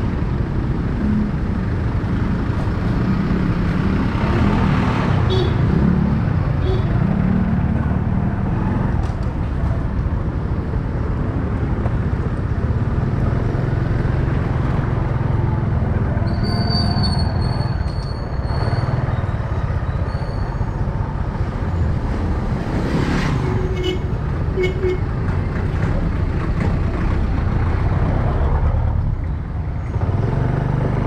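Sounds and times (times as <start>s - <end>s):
motorcycle riding in traffic: 0.0s - 31.0s
thin high squeal: 16.3s - 19.0s.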